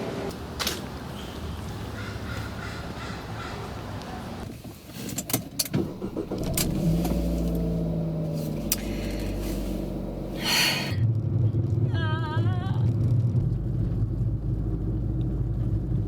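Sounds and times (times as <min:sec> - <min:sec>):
car engine running: 0:05.8 - 0:11.0.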